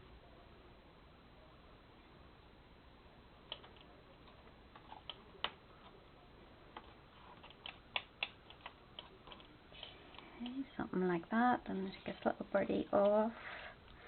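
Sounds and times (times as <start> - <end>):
paper clicks and taps: 6.8 - 10.6.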